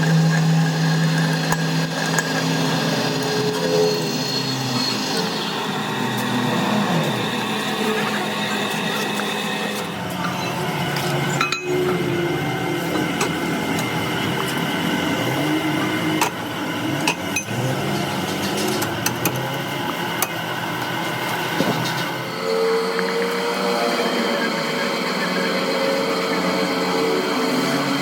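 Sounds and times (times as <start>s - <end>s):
metal-working machinery humming: 0.0s - 28.0s.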